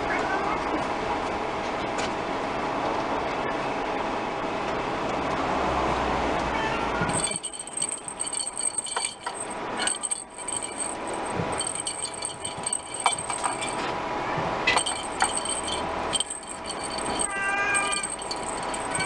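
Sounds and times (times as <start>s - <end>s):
small bell jingling: 7.1s - 13.9s, 14.7s - 19.0s.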